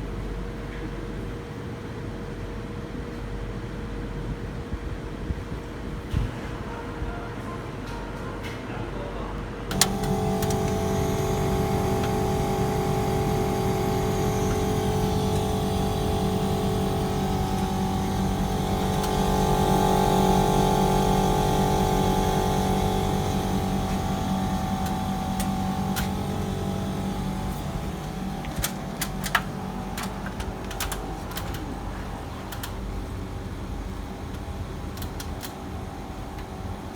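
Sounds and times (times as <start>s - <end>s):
motor starting click: 9.7s - 32.9s
motor humming: 9.7s - 36.8s.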